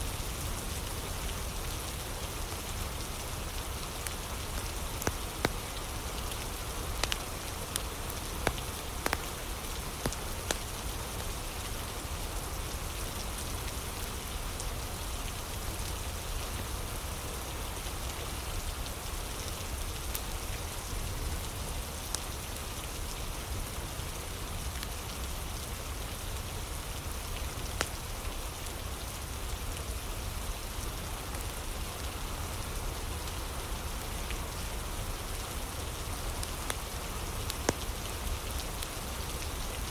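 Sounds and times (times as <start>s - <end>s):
steady rain falling: 0.0s - 39.9s
wood fire crackling pops: 4.5s - 10.7s, 37.5s - 37.9s.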